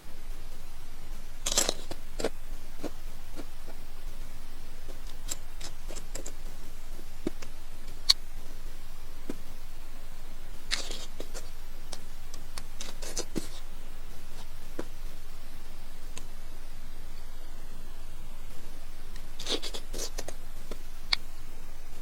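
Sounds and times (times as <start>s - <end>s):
crunchy eating: 10.7s - 11.5s, 19.3s - 21.3s.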